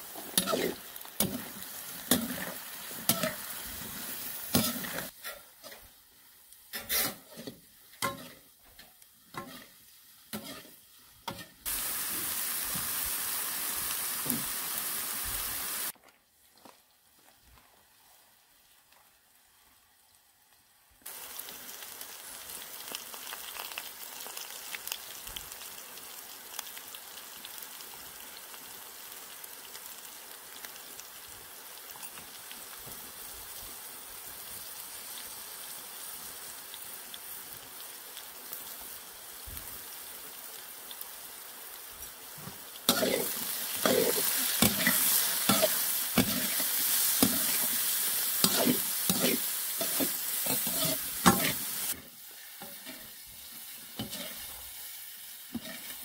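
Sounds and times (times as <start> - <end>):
vegetables sizzling in oil: 0.0 - 16.0, 17.0 - 56.0
metal ladle scraping a pan: 4.5 - 5.9, 6.7 - 8.4, 10.3 - 11.6, 42.9 - 47.8, 48.4 - 52.0, 54.0 - 54.6.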